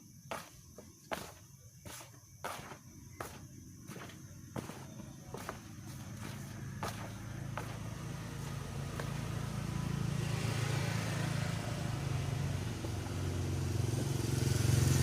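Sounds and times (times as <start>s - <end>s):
vehicle engine running: 5.1s - 15.0s.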